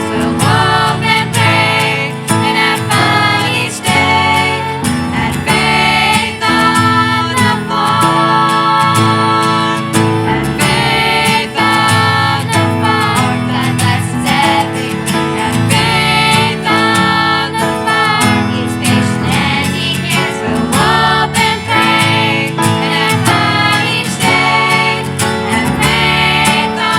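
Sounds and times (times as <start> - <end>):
song with guitar and singing: 0.0 - 26.9.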